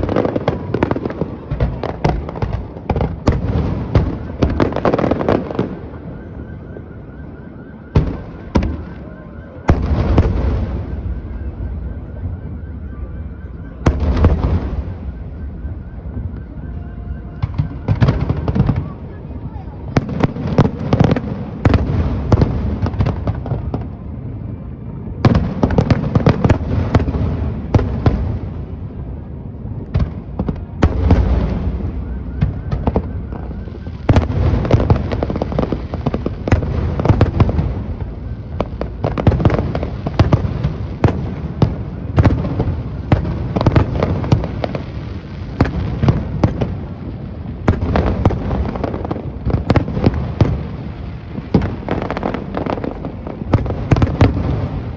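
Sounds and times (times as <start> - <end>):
firework crackling: 0.0 - 6.2, 25.2 - 54.9
firework bursts and booms: 0.0 - 54.9.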